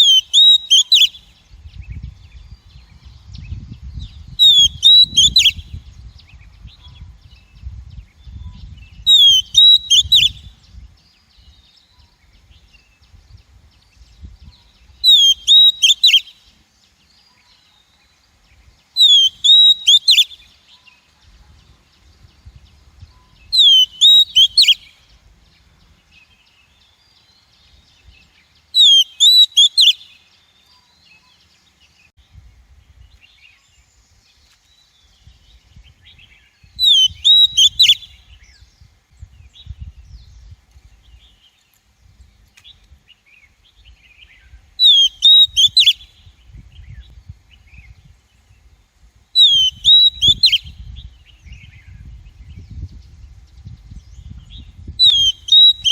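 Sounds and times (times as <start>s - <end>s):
bird whistling calls: 0.0s - 1.3s, 4.3s - 5.8s, 8.4s - 10.5s, 14.4s - 16.4s, 19.0s - 20.5s, 23.1s - 25.0s, 28.8s - 30.2s, 36.0s - 38.6s, 44.0s - 47.1s, 49.4s - 53.0s, 54.0s - 55.9s.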